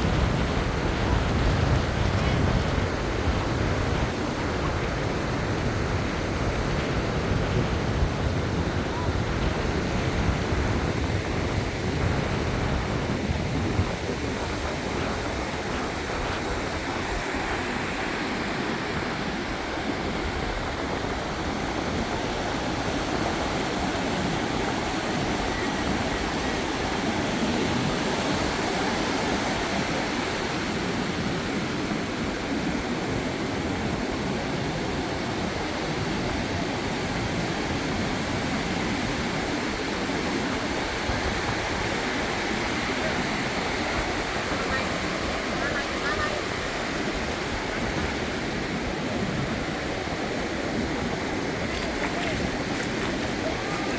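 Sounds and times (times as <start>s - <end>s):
surf washing onto beach: 0.0s - 53.9s
wind rumbling on microphone: 0.0s - 53.9s.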